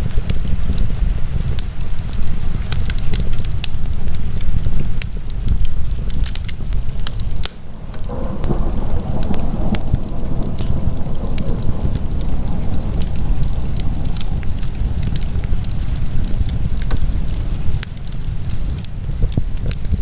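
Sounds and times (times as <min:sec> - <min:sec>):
wood fire crackling: 0:00.0 - 0:20.0
rushing hiss: 0:06.6 - 0:17.8.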